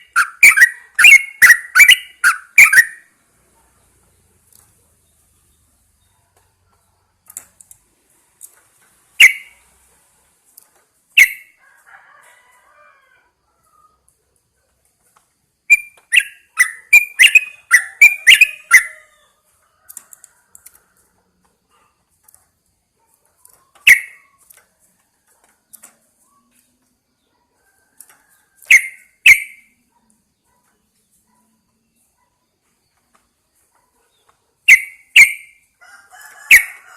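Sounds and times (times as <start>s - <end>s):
bird calling sharp notes: 0.0s - 3.1s, 9.2s - 9.6s, 11.2s - 11.6s, 15.7s - 19.1s, 23.9s - 24.3s, 28.7s - 29.7s, 34.7s - 35.6s.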